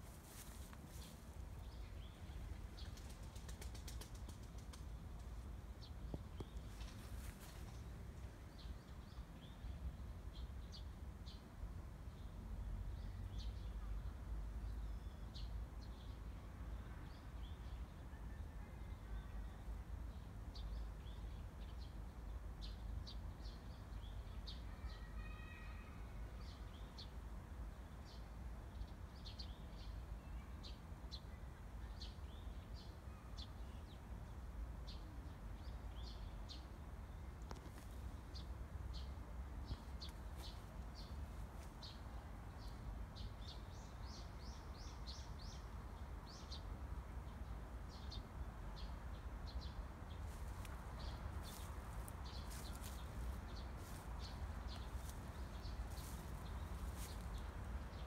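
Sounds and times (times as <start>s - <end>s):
small birds chirping: 49.5s - 58.0s.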